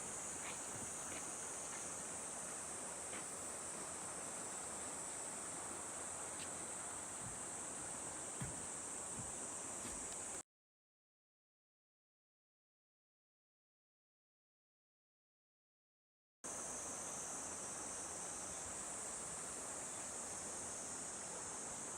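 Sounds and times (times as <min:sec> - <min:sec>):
insects chirping: 0:00.0 - 0:10.4, 0:16.5 - 0:21.9
faint ticks: 0:08.4 - 0:10.4.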